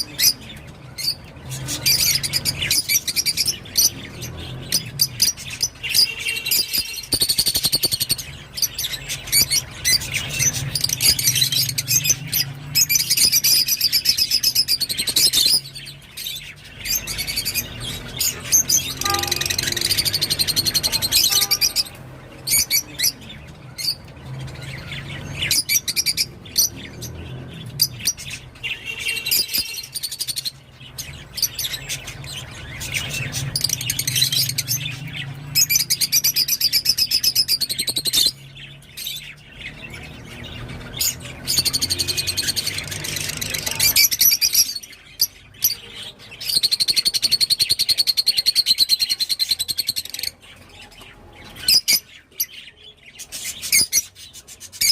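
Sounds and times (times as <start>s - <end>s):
lovebird chattering chirps: 1.0s - 16.3s.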